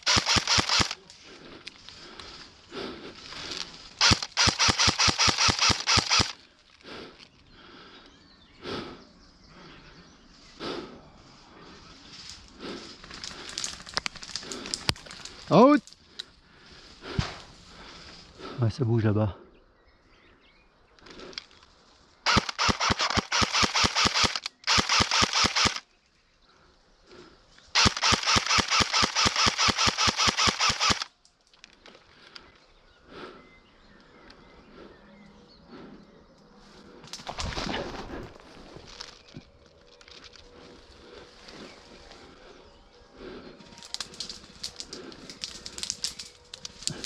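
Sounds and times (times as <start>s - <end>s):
airsoft rifle firing: 0.0s - 1.0s, 4.0s - 6.4s, 22.2s - 25.8s, 27.8s - 31.1s.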